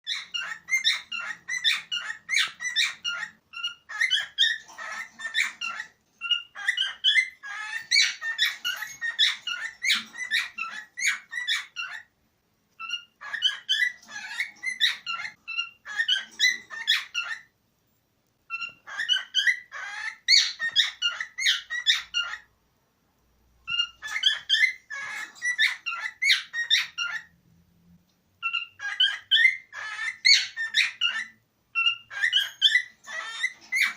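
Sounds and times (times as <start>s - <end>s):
cockatiel chirping and whistling: 0.1s - 12.1s, 12.8s - 17.5s, 18.5s - 22.5s, 23.7s - 27.3s, 28.4s - 33.9s.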